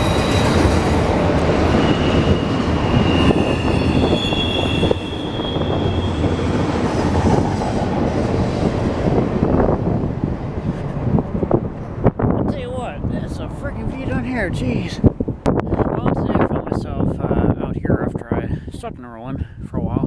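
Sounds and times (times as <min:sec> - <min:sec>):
train wheels squealing: 0:00.0 - 0:07.5
train rumbling past: 0:00.0 - 0:16.4.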